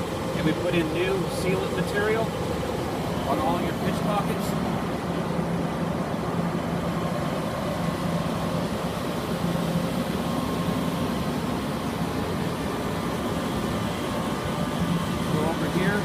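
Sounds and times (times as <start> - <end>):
air conditioning unit running: 0.0 - 16.0.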